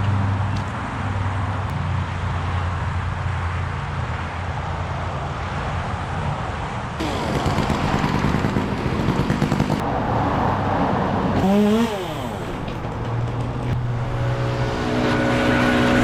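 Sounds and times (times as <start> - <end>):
road traffic: 0.0 - 16.0
vehicle engine: 7.0 - 16.0.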